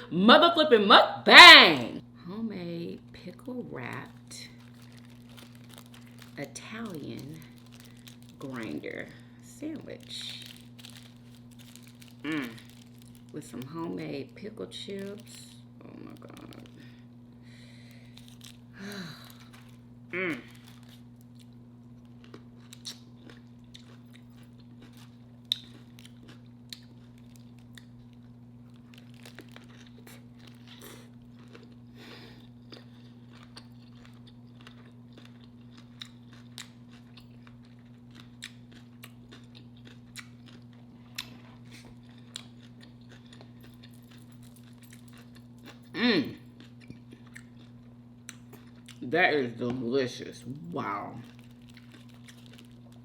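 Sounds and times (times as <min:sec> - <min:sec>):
steady low hum: 0:00.0 - 0:53.0
sandwich crunching: 0:03.9 - 0:53.0.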